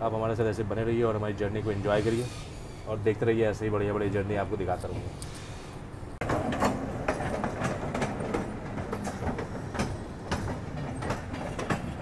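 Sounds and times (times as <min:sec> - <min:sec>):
train wheels clattering over rail joints: 0:06.2 - 0:12.0.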